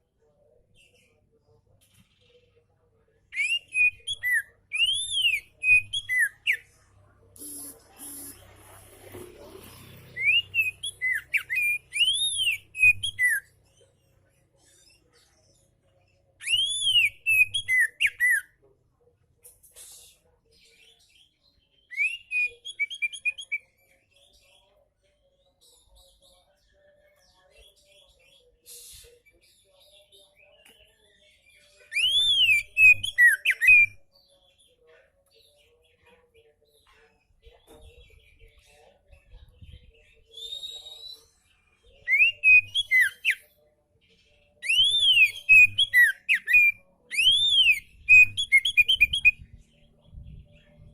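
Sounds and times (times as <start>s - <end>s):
bird singing whistled notes: 3.3s - 6.7s, 10.2s - 13.6s, 16.4s - 18.5s, 21.8s - 23.7s, 31.8s - 34.1s, 40.2s - 43.5s, 44.6s - 50.9s.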